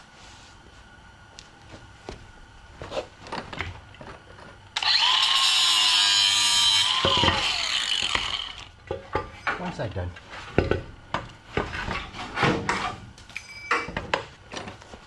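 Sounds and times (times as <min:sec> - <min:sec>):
power tool whining on metal: 0:04.8 - 0:08.7.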